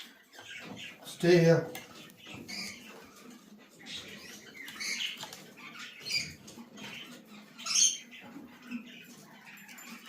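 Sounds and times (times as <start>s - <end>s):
macaw squeaky calls: 2.0s - 10.0s.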